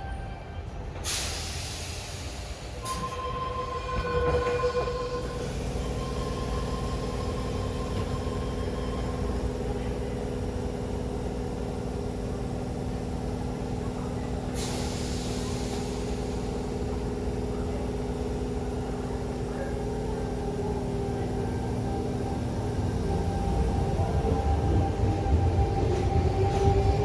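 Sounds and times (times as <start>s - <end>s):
air brake hiss: 1.0s - 3.1s, 14.5s - 16.5s
electric train humming: 1.9s - 27.0s.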